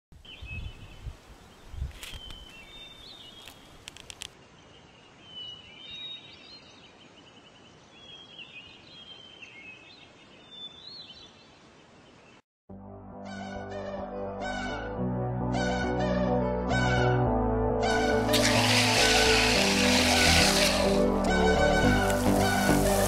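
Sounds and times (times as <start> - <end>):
faint outdoor background noise: 0.2 - 12.4
small birds chirping: 0.2 - 12.4.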